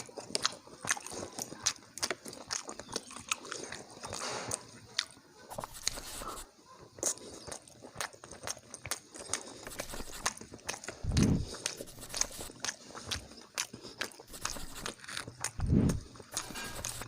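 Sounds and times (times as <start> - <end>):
chewing and mouth smacks: 0.0 - 17.0.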